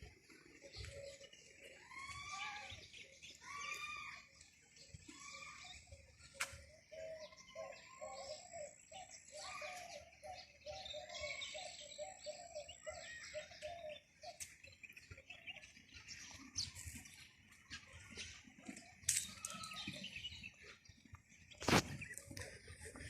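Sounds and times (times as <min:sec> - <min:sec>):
short repeated lower bird calls: 0:00.0 - 0:15.7
birds chirping and calling: 0:00.0 - 0:23.0.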